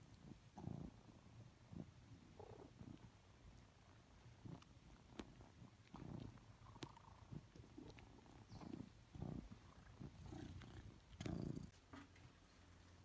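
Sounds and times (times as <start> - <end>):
cat purring: 0.0 - 12.1.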